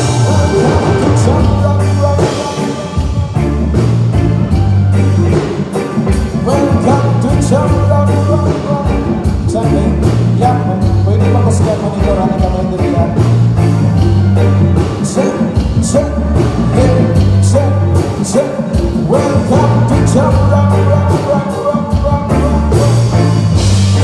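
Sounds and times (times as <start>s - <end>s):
low bass notes: 0.0s - 18.2s, 19.0s - 24.0s
live band playing: 0.0s - 24.0s
person singing: 0.0s - 24.0s
steady drum beat: 0.0s - 24.0s.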